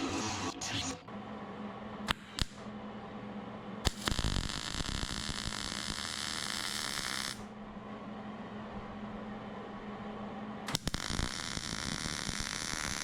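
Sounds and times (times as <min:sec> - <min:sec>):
arc welding crackling hiss: 0:03.8 - 0:07.5, 0:10.7 - 0:13.0.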